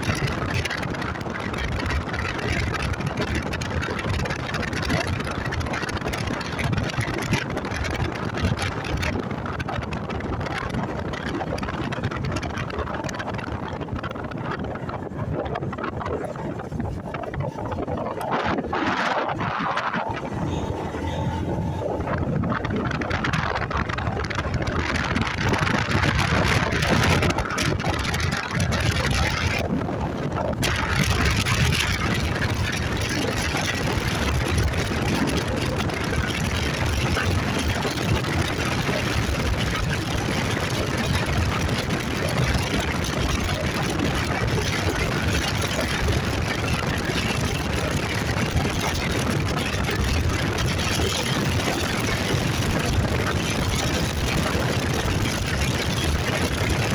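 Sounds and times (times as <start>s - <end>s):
motorcycle engine running: 0.0s - 56.9s
rushing noise: 13.2s - 42.1s.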